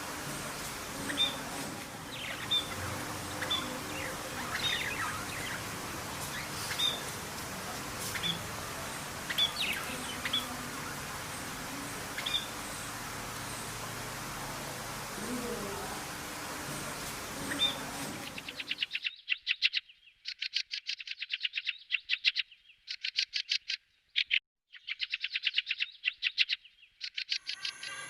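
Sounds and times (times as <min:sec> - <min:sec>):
steady hiss: 0:00.0 - 0:18.9
small birds chirping: 0:00.0 - 0:28.0.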